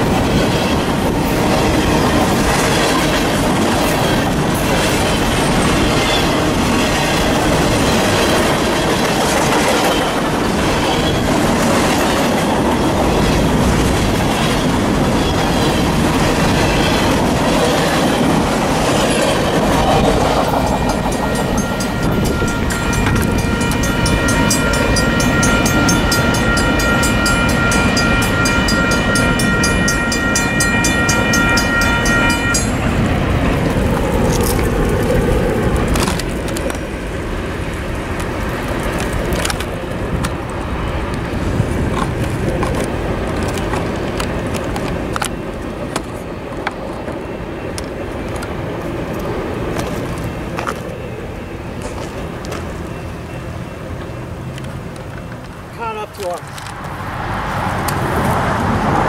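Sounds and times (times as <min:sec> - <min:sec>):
freight train rumbling: 0:00.0 - 0:59.0
crossing warning bell ringing: 0:14.3 - 0:34.6.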